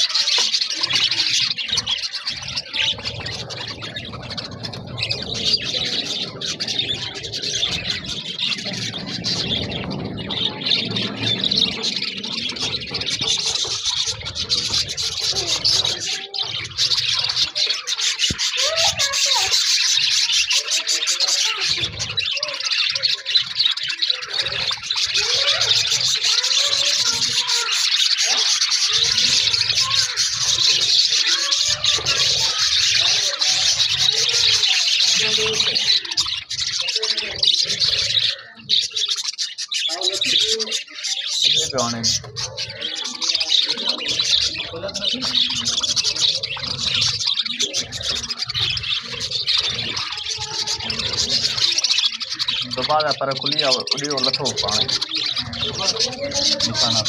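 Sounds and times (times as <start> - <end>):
budgerigars chattering: 0.0 - 57.0
low murmur: 1.6 - 17.4.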